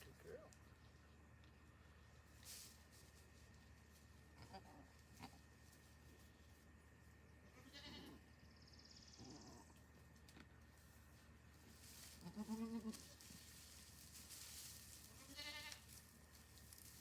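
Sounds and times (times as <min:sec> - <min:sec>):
goat bleating: 0:04.3 - 0:05.5, 0:07.5 - 0:08.3, 0:12.2 - 0:13.2, 0:15.1 - 0:15.9.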